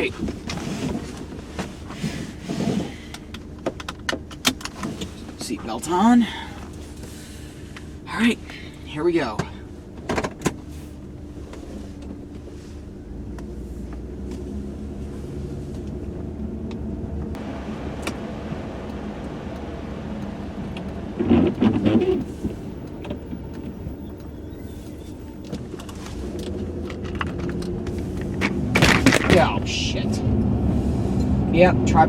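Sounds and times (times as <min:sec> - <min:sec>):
car engine pulling away: 0:00.0 - 0:32.0
road noise: 0:00.0 - 0:32.0
heater blowing: 0:17.3 - 0:25.5.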